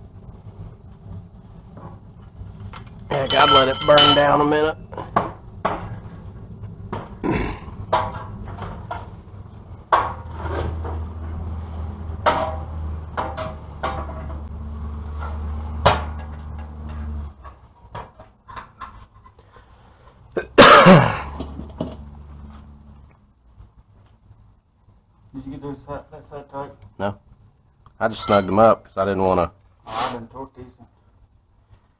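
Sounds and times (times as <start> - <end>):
low steady hum: 0.0 - 31.9
scraping clatter: 1.7 - 4.5
metal tools clinking: 2.6 - 4.7, 28.1 - 28.7.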